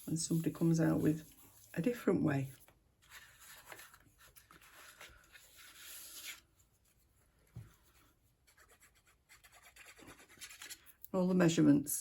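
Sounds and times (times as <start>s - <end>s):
paper rustling and rubbing: 0.0s - 7.1s.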